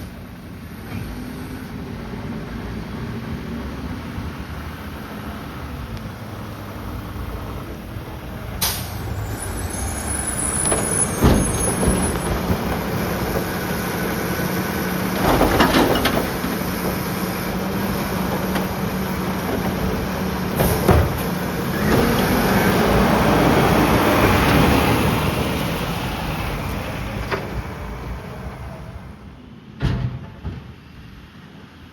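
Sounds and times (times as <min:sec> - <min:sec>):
garbage truck engine droning: 0:00.0 - 0:31.9
air hissing: 0:08.6 - 0:12.2.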